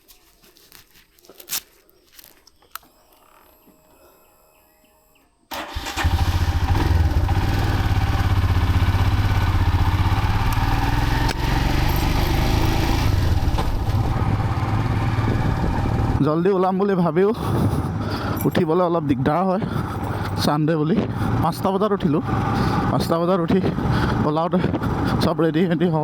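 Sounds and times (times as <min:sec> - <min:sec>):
motorcycle engine running: 0:05.7 - 0:16.2.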